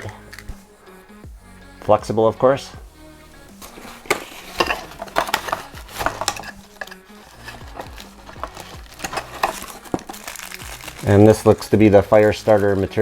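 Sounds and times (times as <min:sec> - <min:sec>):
faint background music: 0:00.0 - 0:13.0
packaging rustling and clicking: 0:03.6 - 0:11.6.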